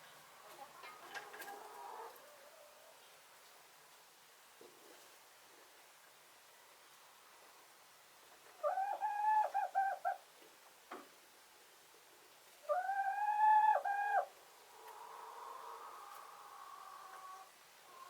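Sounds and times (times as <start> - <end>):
chicken calling: 8.6 - 10.2, 12.6 - 18.0.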